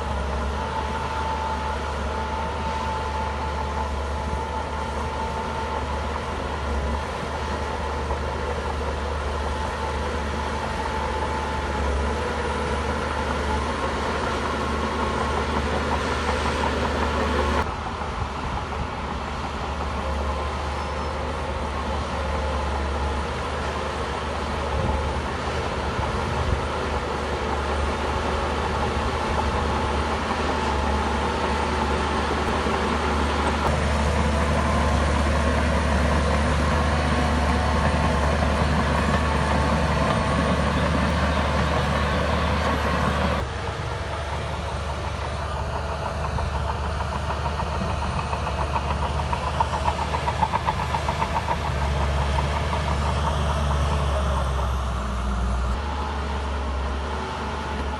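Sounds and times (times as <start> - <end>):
bulldozer diesel engine rumbling: 0.0 - 57.9
metallic rattling of steel tracks: 10.1 - 55.0.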